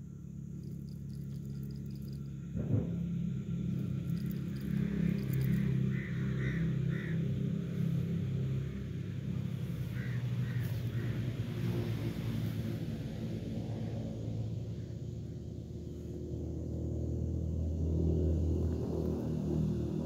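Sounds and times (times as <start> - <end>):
low rumble: 0.3 - 6.2
bird calling: 4.2 - 7.2.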